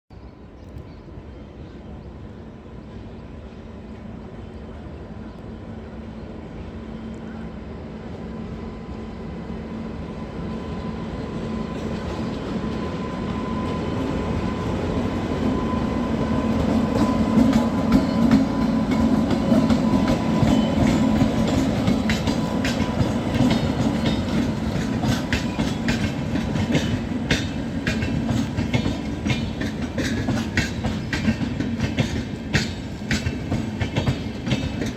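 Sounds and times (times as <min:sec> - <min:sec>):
electric train humming: 0:02.3 - 0:34.9
train wheels clacking on rail joints: 0:16.4 - 0:34.9.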